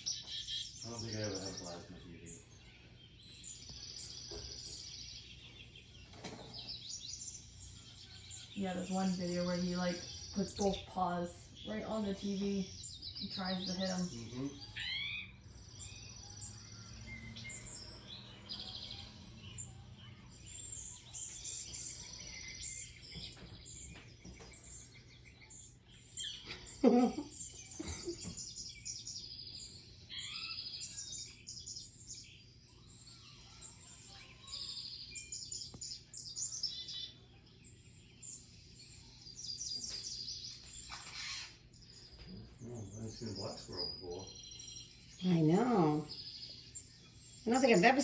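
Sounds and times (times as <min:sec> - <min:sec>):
songbirds chirping through speakers: 0:00.0 - 0:48.0.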